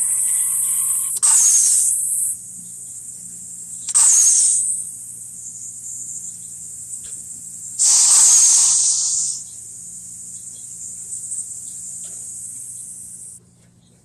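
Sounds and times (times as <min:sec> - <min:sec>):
crickets chirring: 0:00.0 - 0:13.4
faint low hum: 0:00.0 - 0:14.0
loud spraying hiss: 0:07.8 - 0:09.5.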